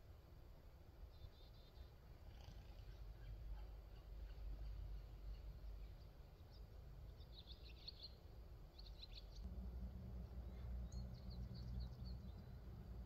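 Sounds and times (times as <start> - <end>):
songbirds chirping: 0.9 - 13.0
steady low rumble: 8.3 - 13.0.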